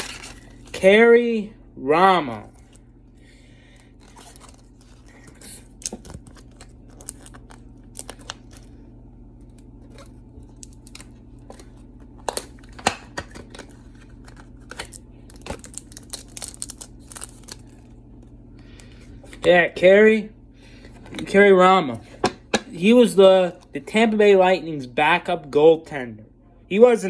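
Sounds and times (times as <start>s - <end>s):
card pack wrapper crinkling and tearing: 0.0s - 0.8s, 4.0s - 8.7s, 9.4s - 17.9s
cards rustling: 0.0s - 0.8s, 3.9s - 8.7s, 9.5s - 18.0s.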